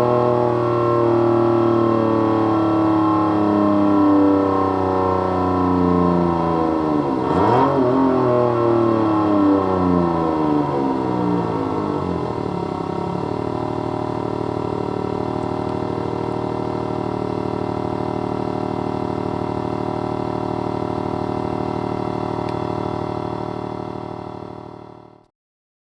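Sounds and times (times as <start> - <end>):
synthesized engine idling burble: 8.4 - 25.3.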